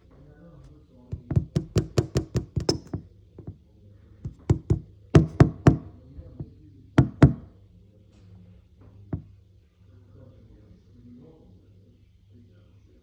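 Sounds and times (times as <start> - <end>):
sharp knocks: 1.2 - 3.6, 4.3 - 5.9.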